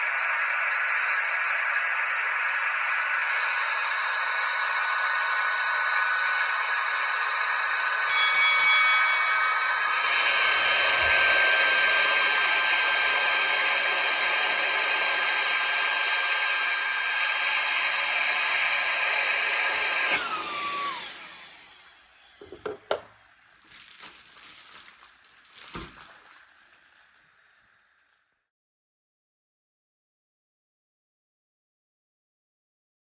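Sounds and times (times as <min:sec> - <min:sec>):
handheld vacuum motor whine: 0:00.0 - 0:24.0.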